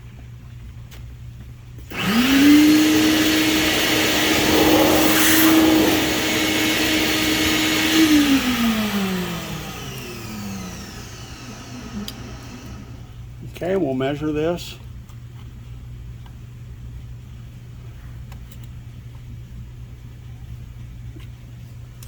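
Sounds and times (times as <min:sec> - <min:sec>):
electric motor whining: 0:01.9 - 0:12.9
loud rushing hiss: 0:02.0 - 0:09.0.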